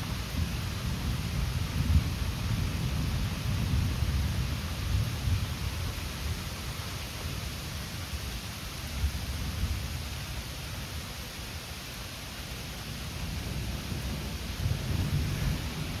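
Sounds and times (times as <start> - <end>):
rain hissing: 0.0 - 16.0
low fluttering thunder rumble: 0.1 - 8.0, 12.8 - 16.0.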